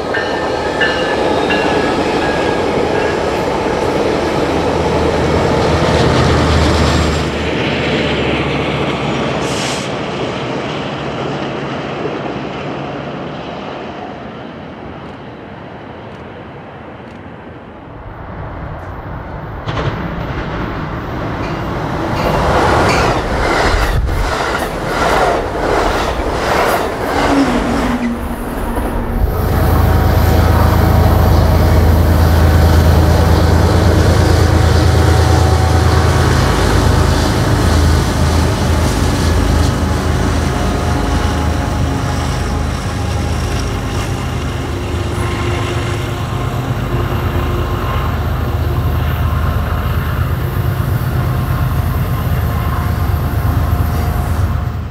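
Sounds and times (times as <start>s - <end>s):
diesel locomotive drone: 0.0s - 54.9s
train wheels clattering: 18.8s - 29.2s.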